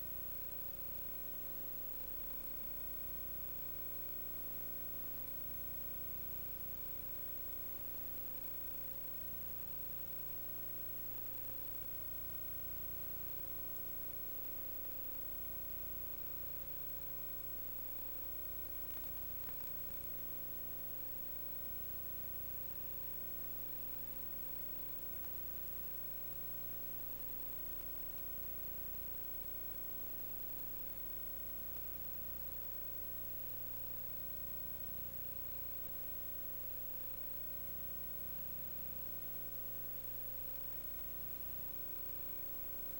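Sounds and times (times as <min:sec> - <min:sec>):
electrical hum with hiss: 0:00.0 - 0:42.9
faint constant tone: 0:00.0 - 0:42.9
faint clicks: 0:18.7 - 0:20.3.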